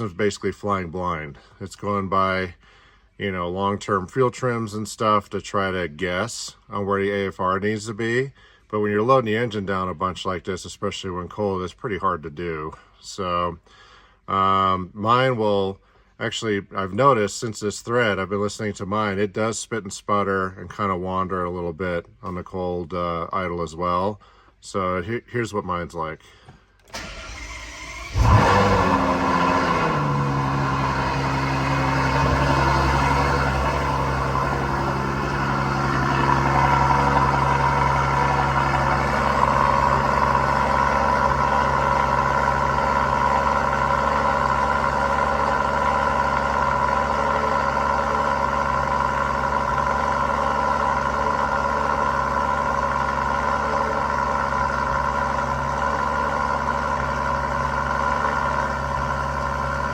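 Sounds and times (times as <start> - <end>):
car engine cold start and high idle: 26.8 - 59.9.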